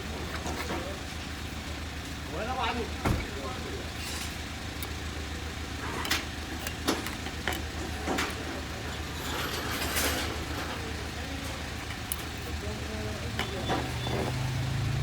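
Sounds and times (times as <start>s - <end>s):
small parts clicking: 5.8s - 14.6s.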